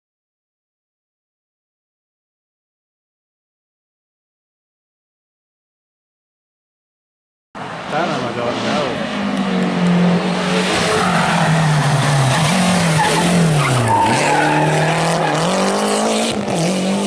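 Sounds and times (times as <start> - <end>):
rally car engine revving: 7.6 - 17.0.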